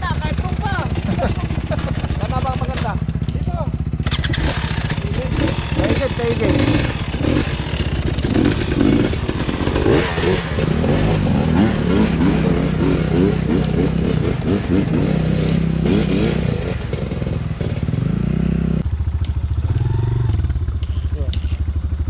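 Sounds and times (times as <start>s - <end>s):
dirt bike engine revving: 0.0s - 18.9s, 19.6s - 22.0s
clatter: 19.2s - 21.8s.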